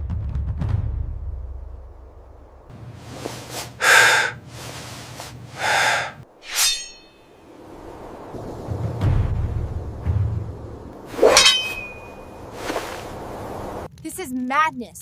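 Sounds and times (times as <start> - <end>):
sharp breath snorts: 3.2 - 6.6
low rumble: 7.0 - 11.2.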